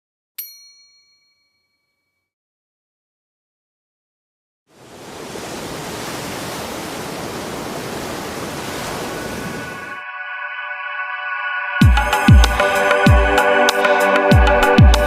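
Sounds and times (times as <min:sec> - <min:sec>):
ocean surf rushing: 0:04.7 - 0:10.0.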